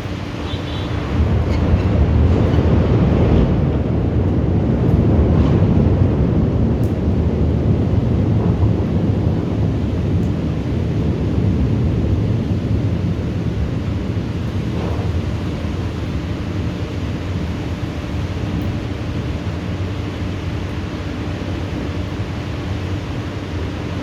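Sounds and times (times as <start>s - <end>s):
low rolling thunder: 0.9s - 15.5s.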